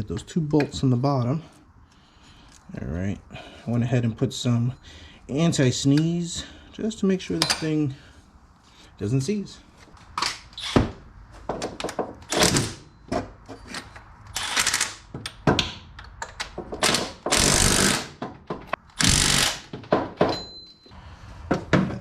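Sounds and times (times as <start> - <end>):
power tool driving bolts: 10.2 - 11.0, 11.6 - 12.9, 13.7 - 20.3.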